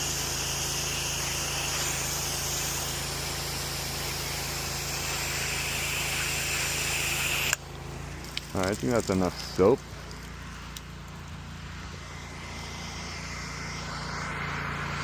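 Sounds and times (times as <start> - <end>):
pressure washer spray hissing: 0.0 - 7.7
pressure washer engine hum: 0.0 - 15.0.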